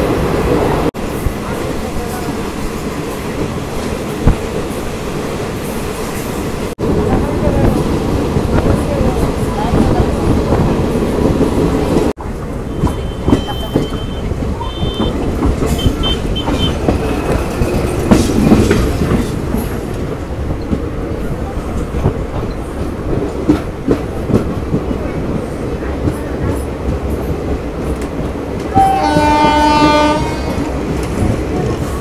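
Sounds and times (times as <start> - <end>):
train wheels clattering: 9.1 - 32.0
train horn chord: 28.7 - 30.7.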